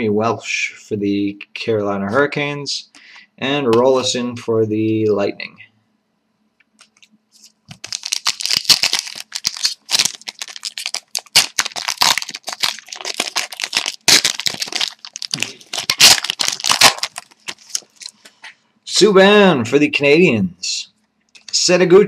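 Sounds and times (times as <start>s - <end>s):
plastic wrapping crinkling and tearing: 6.8s - 18.3s.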